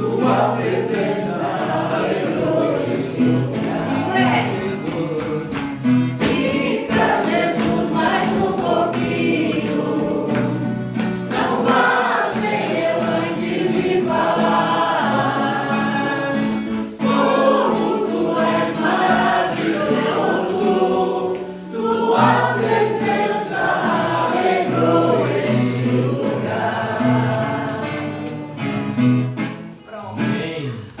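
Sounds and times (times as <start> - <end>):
group singing a worship song: 0.0 - 29.2.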